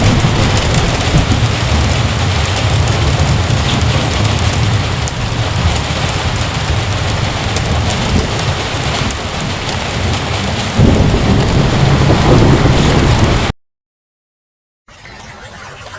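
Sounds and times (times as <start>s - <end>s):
heavy rain pouring: 0.0s - 13.5s
thunder rumble: 0.0s - 13.5s.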